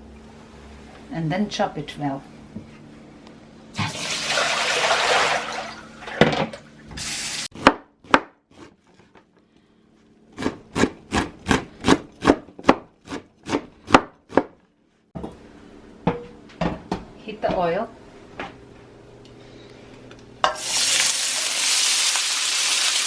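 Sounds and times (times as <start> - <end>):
knife chopping on cutting board: 7.6 - 8.8, 10.4 - 14.6.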